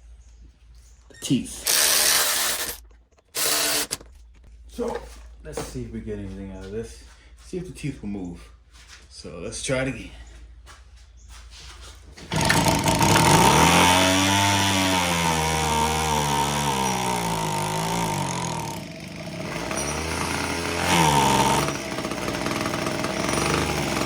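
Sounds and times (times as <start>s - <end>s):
hedge trimmer engine running: 1.6s - 4.0s, 12.3s - 24.0s.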